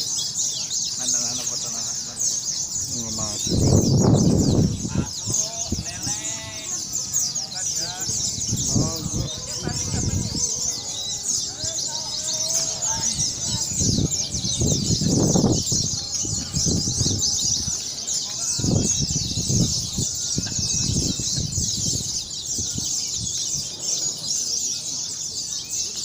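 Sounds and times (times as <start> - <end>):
birds twittering: 0.0 - 26.0
low murmuring voices: 0.0 - 26.0.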